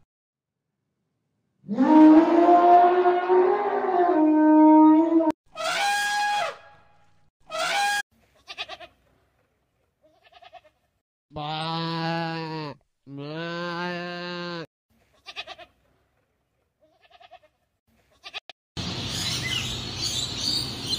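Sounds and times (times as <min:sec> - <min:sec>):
goat bleating: 0:08.4 - 0:09.0, 0:10.0 - 0:15.8, 0:16.8 - 0:18.4.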